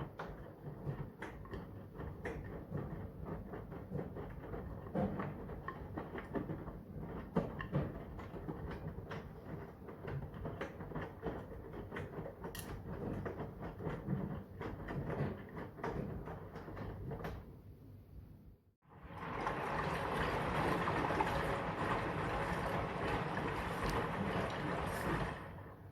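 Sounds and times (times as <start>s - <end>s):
washing machine motor hum: 0.0s - 18.0s, 18.8s - 25.9s
wet laundry sloshing and knocking: 18.9s - 25.9s.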